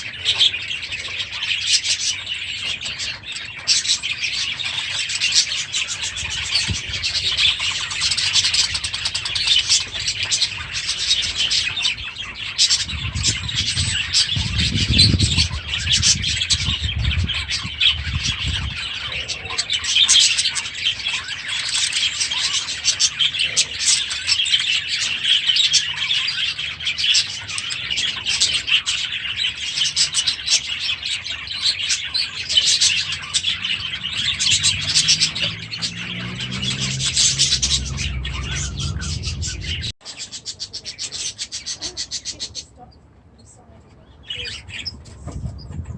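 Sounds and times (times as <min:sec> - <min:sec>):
birds chirping and chattering: 0:00.0 - 0:45.9
low rumble: 0:33.0 - 0:40.0.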